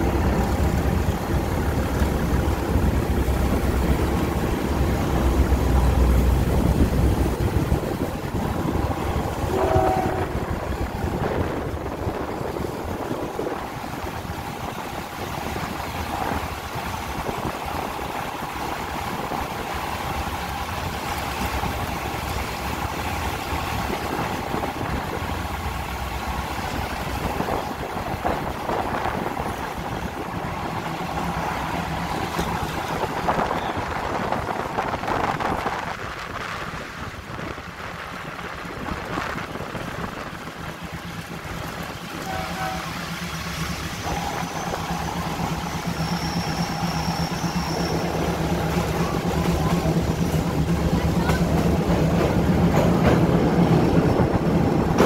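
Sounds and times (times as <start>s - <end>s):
train wheels rumbling on rails: 0.0s - 55.0s
high whine: 42.2s - 51.4s.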